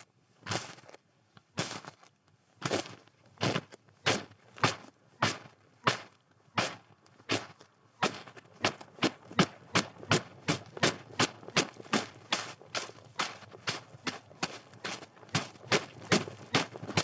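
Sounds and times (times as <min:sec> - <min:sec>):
footsteps crunching in snow: 0:11.5 - 0:17.0.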